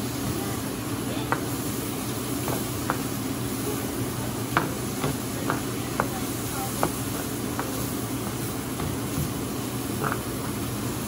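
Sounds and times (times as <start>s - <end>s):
mushrooms sizzling in a pan: 0.1s - 11.0s.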